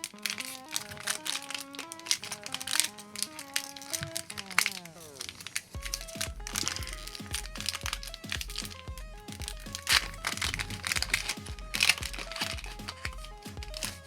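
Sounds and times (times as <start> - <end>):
foil wrapper crinkling: 0.0 - 14.0
music with steady beat: 5.8 - 14.0.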